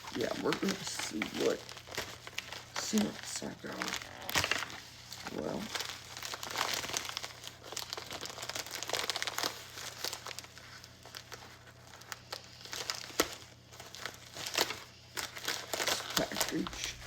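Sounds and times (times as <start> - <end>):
packaging crinkling and rustling: 0.0 - 17.0.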